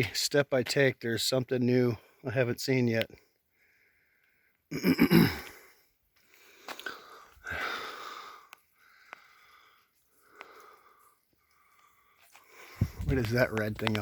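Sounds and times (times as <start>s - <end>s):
person breathing hard: 6.2s - 13.0s.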